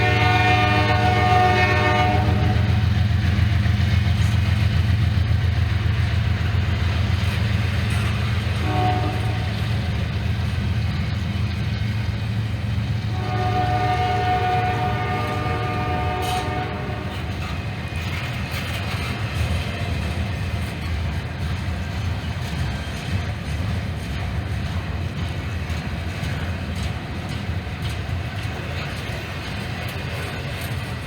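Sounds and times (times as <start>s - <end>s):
locomotive horn blasts: 0.0s - 2.8s, 8.6s - 9.6s, 13.1s - 17.4s
diesel locomotive engine rumbling: 0.0s - 31.0s.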